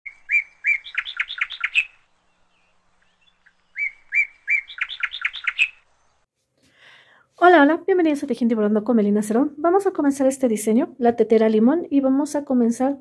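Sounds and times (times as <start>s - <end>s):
songbird singing: 0.1s - 6.3s.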